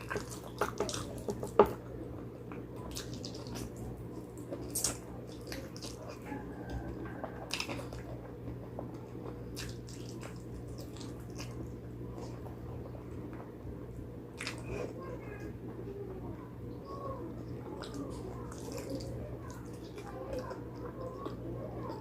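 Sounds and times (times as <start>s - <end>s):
wet chewing and biting: 0.0s - 1.9s, 2.5s - 12.9s, 17.8s - 21.4s
steady low hum: 0.0s - 22.0s.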